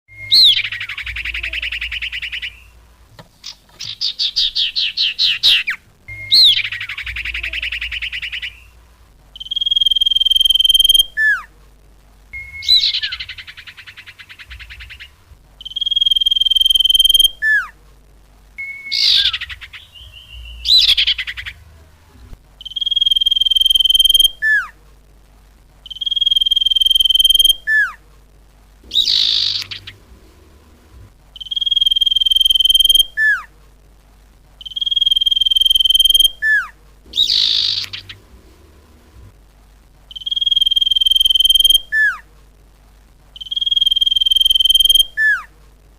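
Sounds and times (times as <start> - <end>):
bird lure calls: 37.1 - 38.2.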